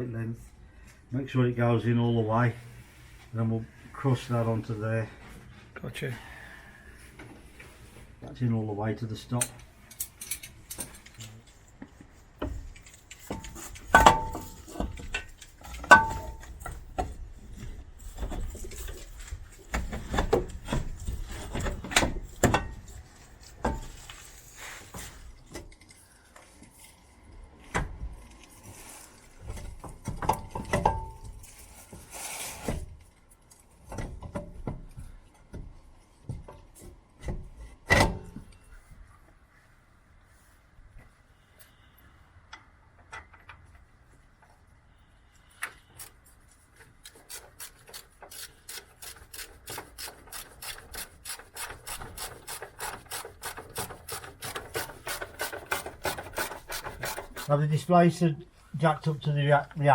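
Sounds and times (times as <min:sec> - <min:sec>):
hand tools knocking on metal: 0:13.3 - 0:17.1.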